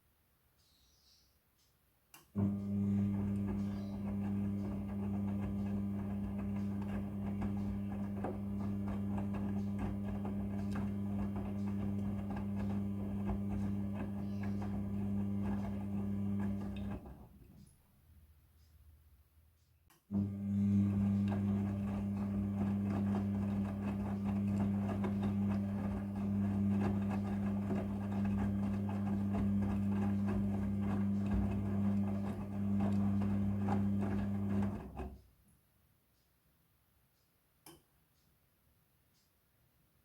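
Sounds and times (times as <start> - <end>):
washing machine motor humming: 2.4 - 17.5, 20.1 - 35.2.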